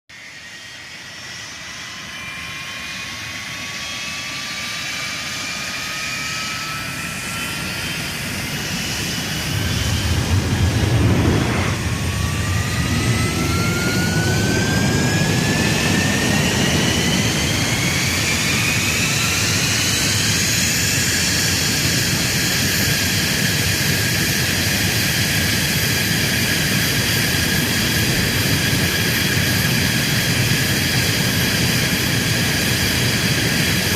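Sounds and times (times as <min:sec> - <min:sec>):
jet engine whine: 0:00.1 - 0:33.9
low engine rumble: 0:08.6 - 0:17.7.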